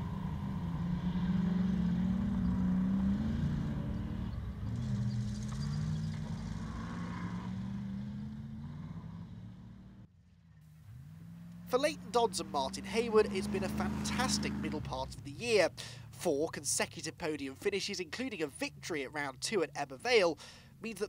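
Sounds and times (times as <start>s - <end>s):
racing car engine revving: 0.0s - 10.1s, 10.7s - 15.7s.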